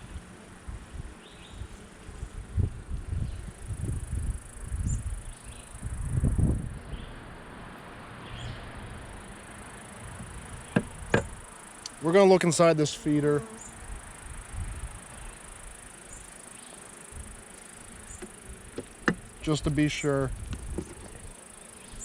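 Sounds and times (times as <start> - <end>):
bees buzzing: 9.0 - 22.0
low bumps and rustles: 20.3 - 21.3.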